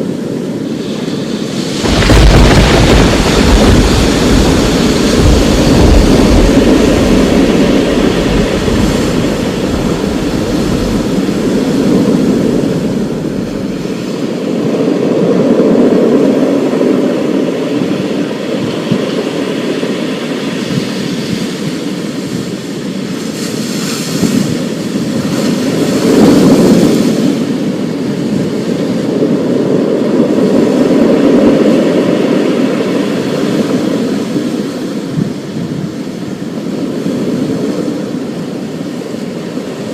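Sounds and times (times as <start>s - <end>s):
storm wind and rain: 0.0s - 39.9s
deep thunder rumble: 1.6s - 17.0s.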